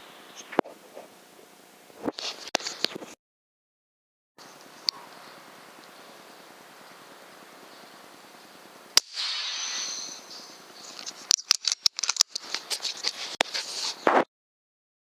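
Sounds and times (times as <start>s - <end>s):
hissing noise: 4.9s - 14.2s
air rifle shot crack: 9.0s - 10.7s.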